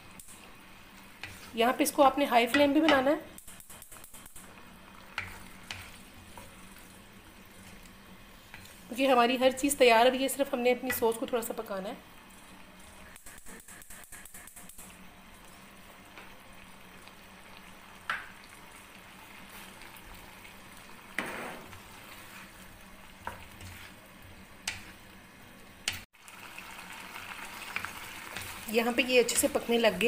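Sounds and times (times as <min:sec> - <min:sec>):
sauce sizzling and bubbling: 0:00.0 - 0:30.0.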